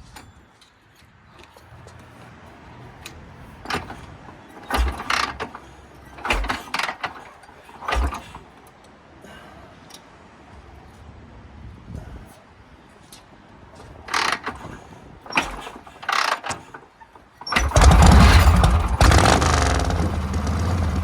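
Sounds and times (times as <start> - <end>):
motorcycle kick-starter thumps: 3.7 - 5.6, 6.2 - 7.2, 7.8 - 8.4, 17.4 - 21.0.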